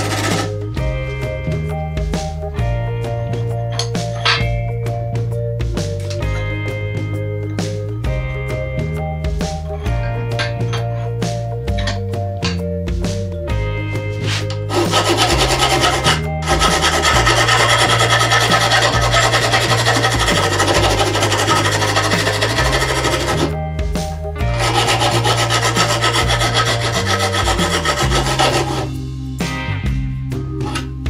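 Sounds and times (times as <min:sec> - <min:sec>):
hand file rasping on metal: 0:00.0 - 0:00.6, 0:14.2 - 0:23.6, 0:24.4 - 0:29.0.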